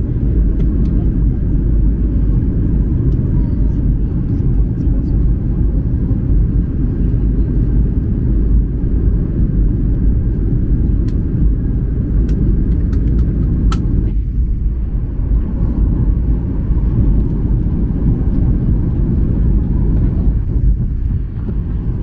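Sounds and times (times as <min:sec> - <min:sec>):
aircraft cabin engine rumble: 0:00.0 - 0:22.0.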